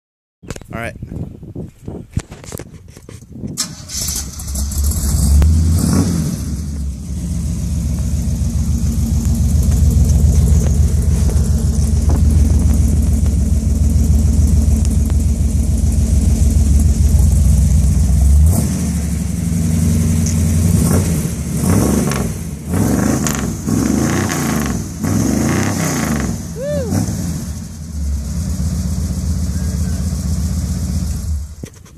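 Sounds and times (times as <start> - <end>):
truck engine revving: 3.6 - 31.6.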